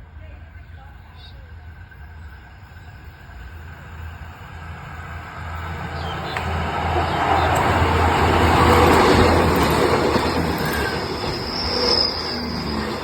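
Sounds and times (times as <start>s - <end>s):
express train rushing past: 0.0s - 13.0s
high wheel squeal: 7.0s - 13.0s.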